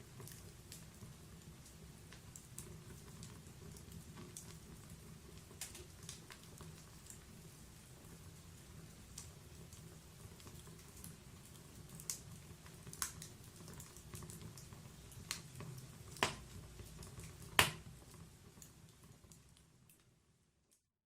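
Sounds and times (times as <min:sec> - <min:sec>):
log fire crackling: 0:00.0 - 0:20.2
sharp fire pops: 0:16.1 - 0:16.6, 0:17.4 - 0:17.9.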